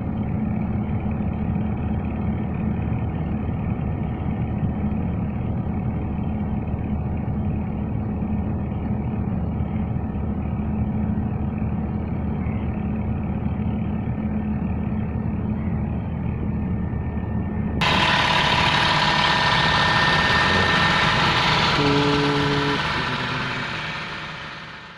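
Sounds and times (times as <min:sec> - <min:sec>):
engine humming: 0:00.0 - 0:24.9
bright steady held tones: 0:17.8 - 0:24.9.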